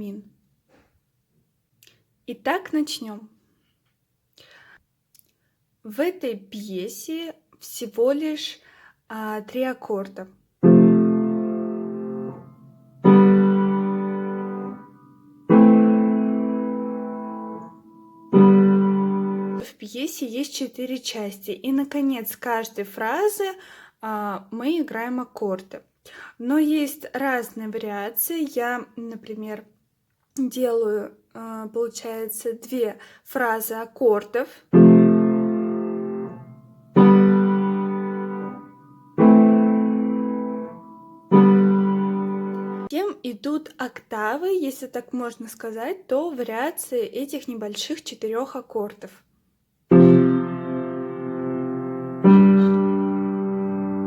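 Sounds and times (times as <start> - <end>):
piano chords: 10.6 - 19.6, 34.8 - 42.9, 49.9 - 54.0.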